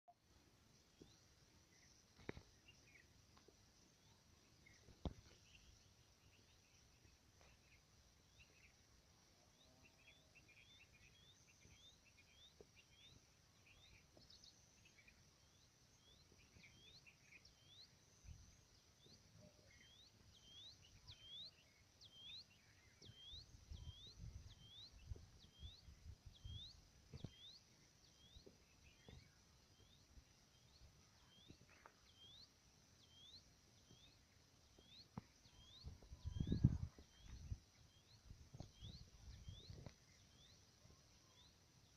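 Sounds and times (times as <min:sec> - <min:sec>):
wild birds chirping: 0:00.3 - 0:41.9
wind rumbling on microphone: 0:23.5 - 0:27.4, 0:35.5 - 0:40.0.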